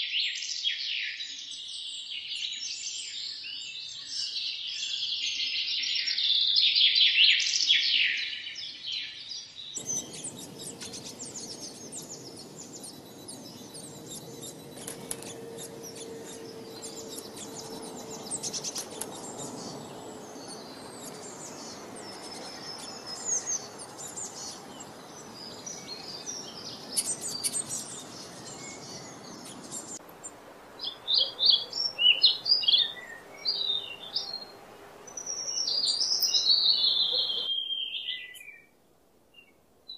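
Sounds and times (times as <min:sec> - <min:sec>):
small birds chirping: 0:08.6 - 0:38.7
steady hiss: 0:09.8 - 0:36.1.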